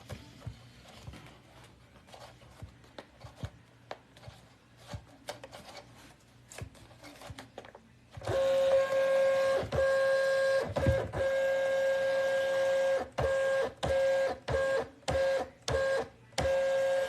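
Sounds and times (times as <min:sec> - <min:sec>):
label printer motor whine: 0:08.2 - 0:17.0.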